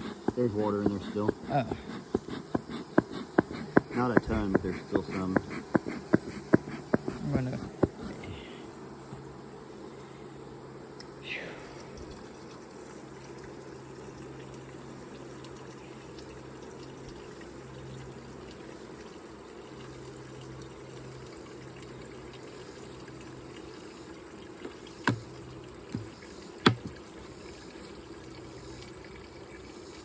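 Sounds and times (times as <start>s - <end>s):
sharp knocks: 0.0s - 8.1s, 25.1s - 25.3s, 26.0s - 27.0s
liquid trickling into feeder: 0.0s - 8.6s, 11.4s - 30.0s.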